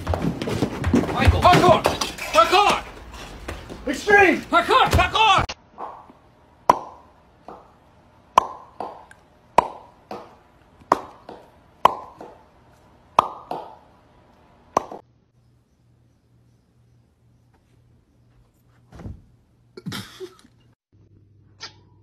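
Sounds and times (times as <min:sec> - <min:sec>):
sharp hollow plops: 0:05.8 - 0:12.4, 0:13.2 - 0:13.8, 0:14.7 - 0:15.0.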